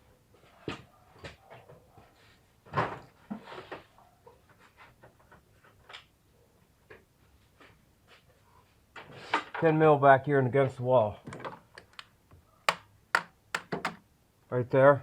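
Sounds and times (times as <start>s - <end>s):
hand tools clicking and knocking: 11.3s - 14.0s.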